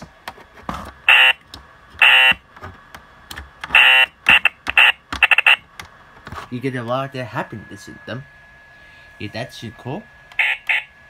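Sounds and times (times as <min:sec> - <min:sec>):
electronic buzzer: 0:01.1 - 0:01.4, 0:02.0 - 0:02.4, 0:03.7 - 0:05.6, 0:09.9 - 0:11.0.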